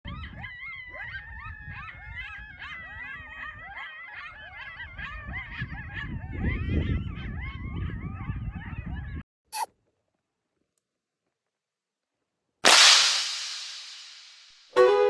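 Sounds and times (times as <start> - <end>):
coyotes yipping and howling: 0.0 - 9.2.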